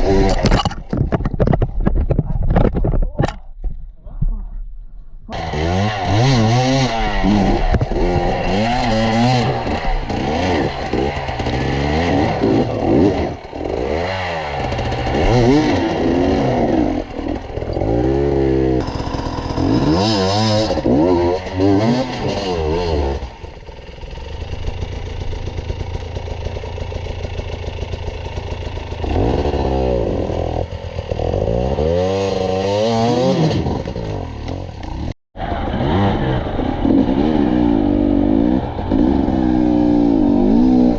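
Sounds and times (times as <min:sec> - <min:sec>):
motorcycle engine revving: 0:00.0 - 0:01.0, 0:05.3 - 0:40.9.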